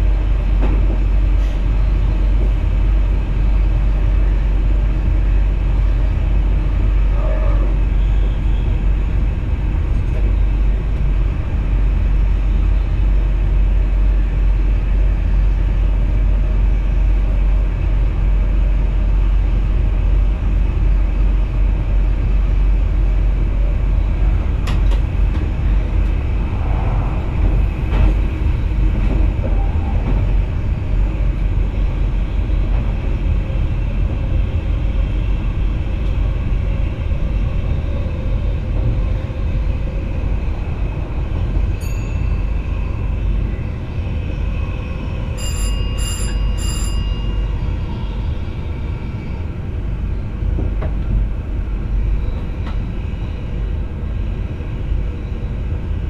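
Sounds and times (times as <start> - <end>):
wheels rumbling on track: 0.0 - 56.0.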